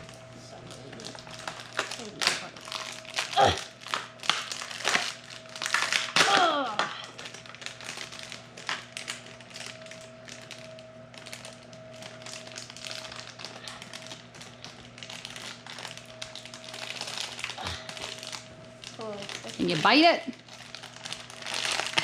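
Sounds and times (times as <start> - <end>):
crinkly plastic bag handled: 0.0 - 6.2, 7.1 - 22.0.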